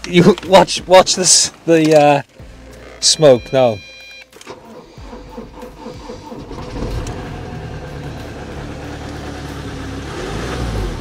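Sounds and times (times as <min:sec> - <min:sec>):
van engine cranking and running: 0:04.4 - 0:11.0.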